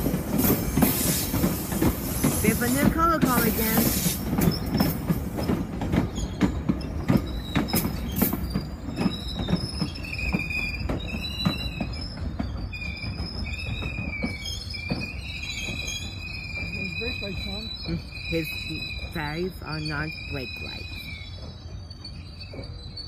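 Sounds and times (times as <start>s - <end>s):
train wheels clicking over rail joints: 0.0s - 23.0s
high-pitched wheel squeal: 6.1s - 23.0s.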